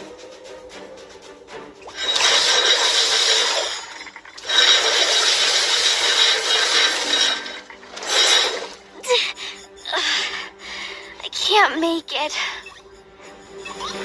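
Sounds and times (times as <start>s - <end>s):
thin high whine: 1.8s - 8.8s
hissing rattling mechanical noise: 1.9s - 9.0s.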